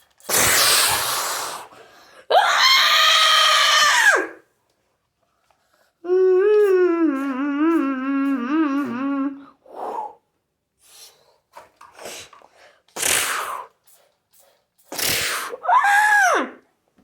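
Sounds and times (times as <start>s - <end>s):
person humming a wavering note: 6.1s - 9.5s.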